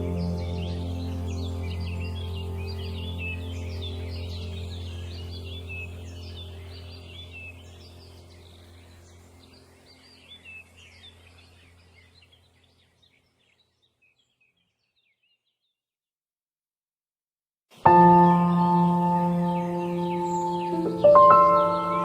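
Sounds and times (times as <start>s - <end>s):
low steady hum: 0.0s - 12.7s
small birds chirping: 0.0s - 15.9s, 17.8s - 22.0s.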